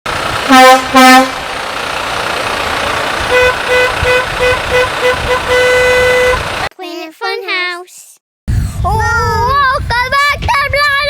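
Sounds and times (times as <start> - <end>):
deep vehicle horn blast: 0.4 - 1.5, 3.2 - 6.7
higher horn short beeps: 3.3 - 6.5.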